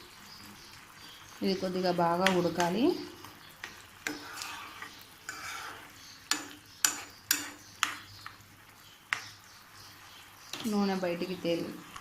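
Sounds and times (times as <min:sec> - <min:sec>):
light sizzling: 0:00.0 - 0:12.0
utensil scraping a pan: 0:03.6 - 0:08.0.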